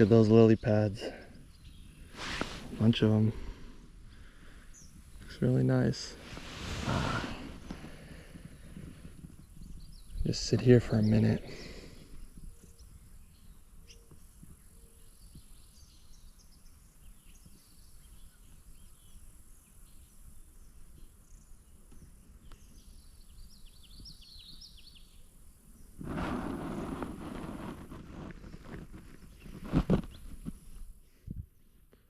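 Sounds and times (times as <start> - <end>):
faint insect drone: 0.0 - 31.3
songbirds chirping faintly: 0.0 - 32.0
loud rustling noise: 2.1 - 2.9, 6.1 - 7.8, 26.0 - 30.8.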